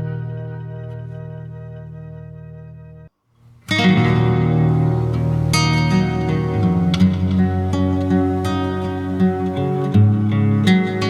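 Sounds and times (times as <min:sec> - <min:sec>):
held chord with deep bass: 0:03.7 - 0:11.0.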